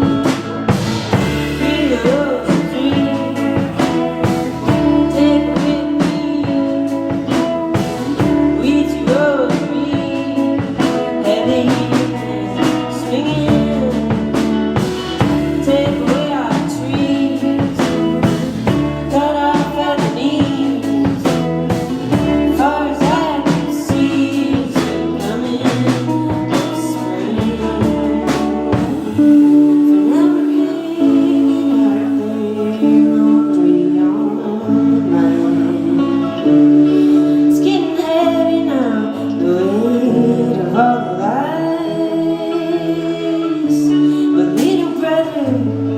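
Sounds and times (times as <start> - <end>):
drum kit hits: 0.0 - 5.1
guitar: 0.0 - 45.9
person singing: 0.0 - 45.9
sustained bass notes: 0.0 - 45.9.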